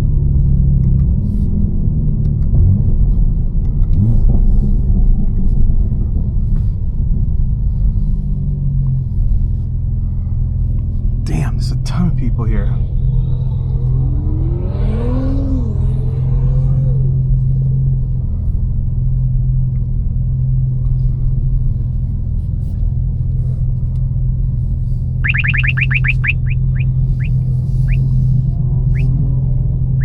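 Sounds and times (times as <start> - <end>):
car engine low drone: 0.0 - 30.0
short rising chirps: 25.2 - 28.1.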